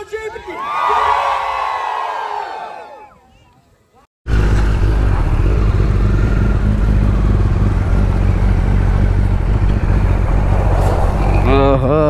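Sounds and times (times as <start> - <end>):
motorcycle engine idling low: 4.3 - 10.6.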